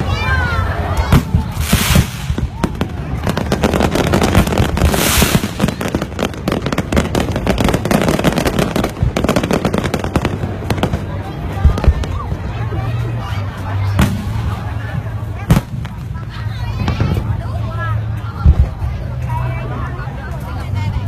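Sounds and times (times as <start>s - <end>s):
fireworks crackling and banging: 0.0s - 21.0s
fireworks hiss: 1.2s - 2.6s, 3.2s - 11.0s.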